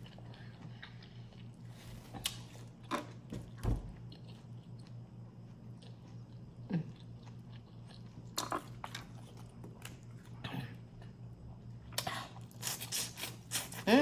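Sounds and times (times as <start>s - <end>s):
person chewing: 11.8s - 14.0s.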